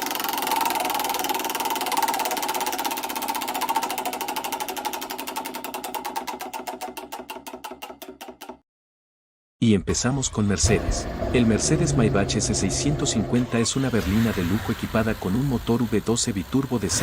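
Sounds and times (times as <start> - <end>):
mechanical clicking slowing down: 0.0 - 7.9.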